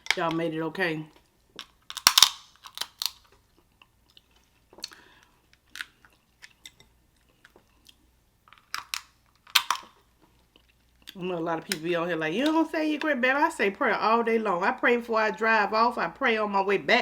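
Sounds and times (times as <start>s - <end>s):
shell crunches and snaps: 1.2s - 11.8s
chewing and biting: 1.6s - 8.0s.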